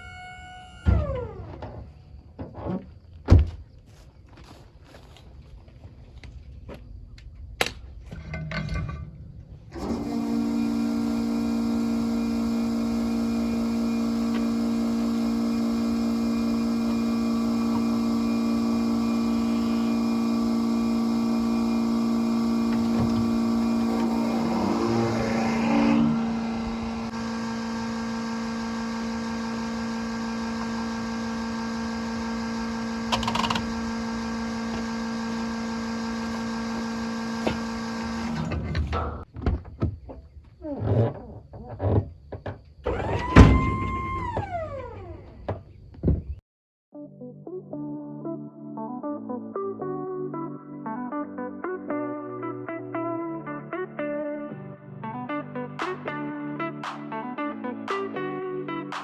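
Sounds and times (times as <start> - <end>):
engine humming: 4.4 - 39.2
synthesizer music with gliding notes: 23.4 - 27.1, 47.0 - 59.0.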